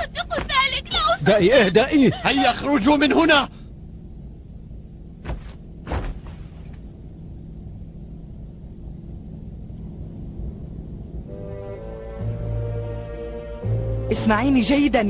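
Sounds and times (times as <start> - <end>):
low background rumble: 0.0 - 15.0
sustained music notes: 11.2 - 15.0.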